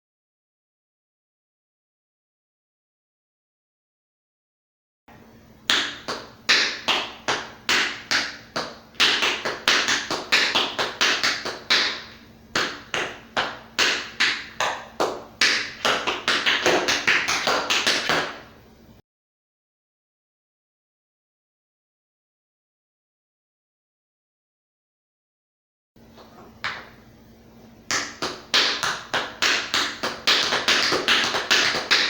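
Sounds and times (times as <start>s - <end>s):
tap shoes striking hard floor: 5.7s - 18.4s, 26.2s - 27.0s, 27.9s - 32.0s.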